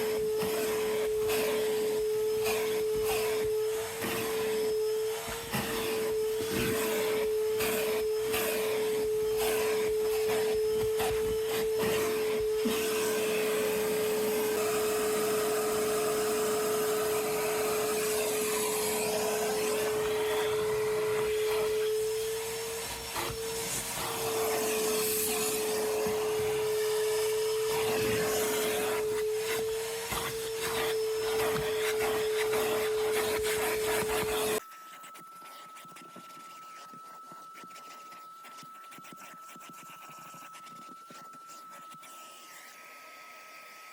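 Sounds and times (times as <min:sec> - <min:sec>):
vacuum motor whine: 0:00.0 - 0:34.6
vacuum nozzle rasping and knocking: 0:00.0 - 0:42.6.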